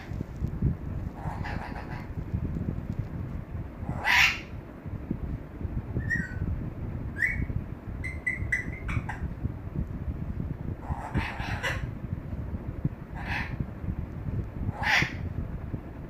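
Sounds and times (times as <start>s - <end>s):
parrot squawking: 1.2s - 2.1s, 3.9s - 4.5s, 7.2s - 9.2s, 10.8s - 11.9s, 13.2s - 13.6s, 14.7s - 15.2s
parrot whistled chirps: 7.2s - 7.5s.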